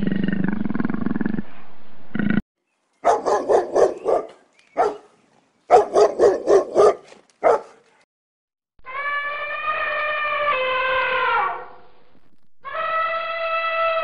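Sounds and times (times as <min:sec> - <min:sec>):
small dog barking: 0:03.0 - 0:05.1, 0:05.7 - 0:07.8.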